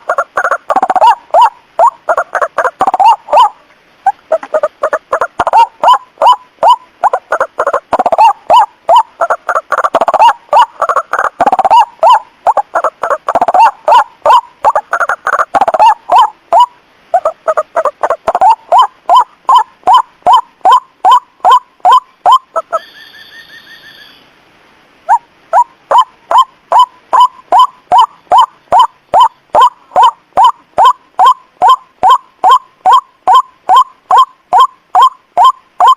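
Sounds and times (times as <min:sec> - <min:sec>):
waterhen harsh calls: 0:00.0 - 0:24.4, 0:25.0 - 0:35.9
faint high-pitched tone: 0:22.7 - 0:24.4.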